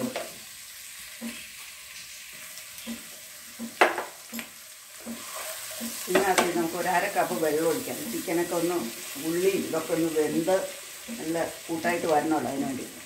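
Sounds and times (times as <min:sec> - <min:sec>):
chicken and onions sizzling: 0:00.0 - 0:13.0
wooden spatula stirring: 0:02.2 - 0:11.7.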